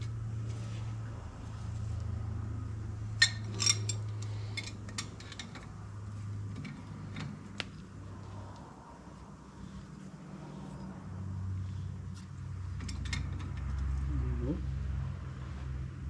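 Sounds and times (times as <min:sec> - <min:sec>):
steady low hum: 0:00.0 - 0:16.0
metal nut clinking: 0:03.2 - 0:05.7.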